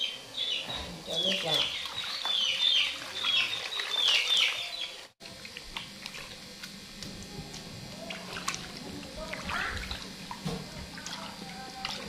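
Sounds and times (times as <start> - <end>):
hands scrubbing in water: 1.3 - 4.8.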